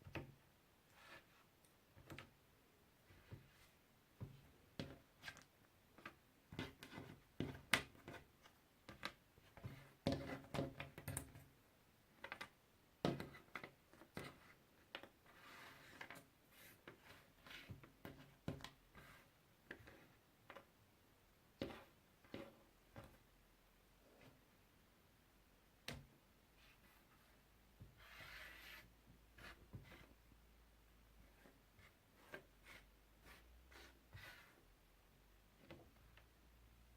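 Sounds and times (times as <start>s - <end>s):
soft rustle: 26.5s - 30.2s.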